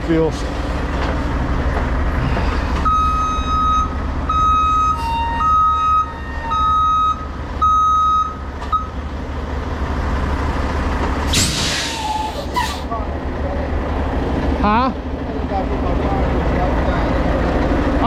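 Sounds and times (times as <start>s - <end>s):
diesel engine running: 0.0s - 18.0s
truck backup alarm beeping: 2.6s - 9.0s
short hiss: 11.3s - 12.8s.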